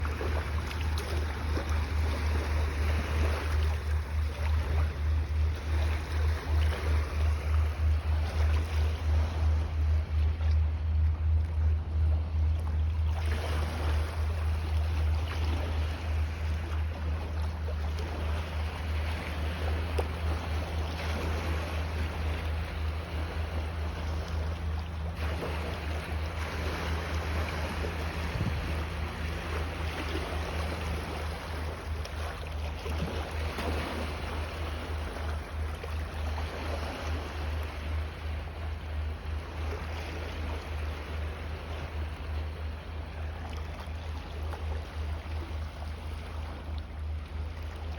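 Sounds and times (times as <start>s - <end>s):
wind rumble on microphone: 0.0s - 32.2s
waves washing against shore: 18.0s - 38.1s.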